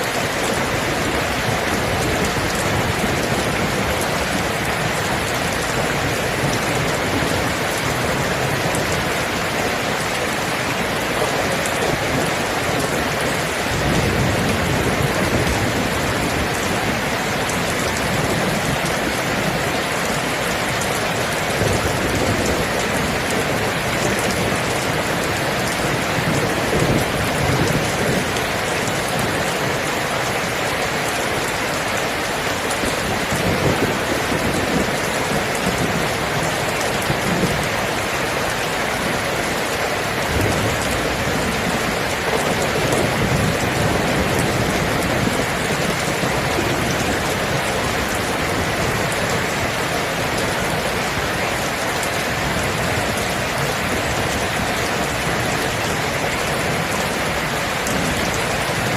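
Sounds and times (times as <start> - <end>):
heavy rain falling: 0.0 - 58.9.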